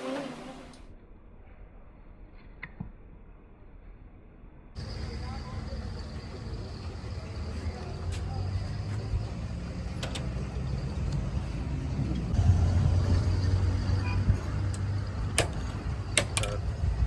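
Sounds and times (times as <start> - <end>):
low machine hum: 4.8 - 17.0.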